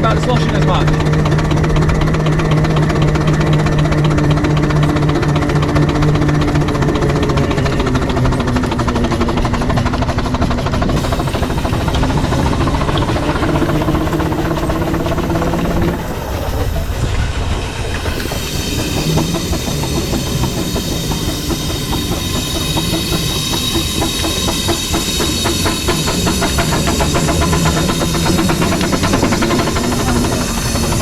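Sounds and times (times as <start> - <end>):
steam engine exhaust beats: 0.0 - 31.0
steam hissing: 9.5 - 31.0.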